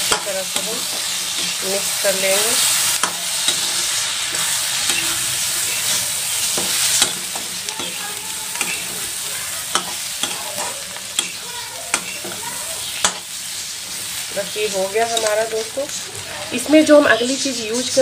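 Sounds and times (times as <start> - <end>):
utensil scraping metal pan: 0.0 - 14.2
food sizzling in oil: 0.0 - 18.0.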